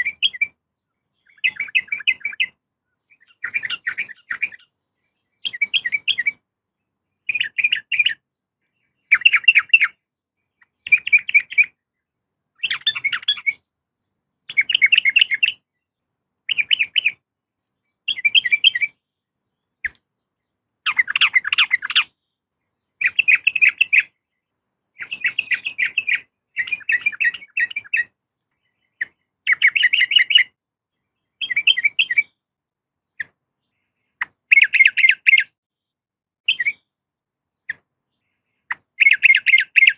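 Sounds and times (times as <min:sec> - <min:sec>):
bird chattering calls: 0:20.9 - 0:22.2.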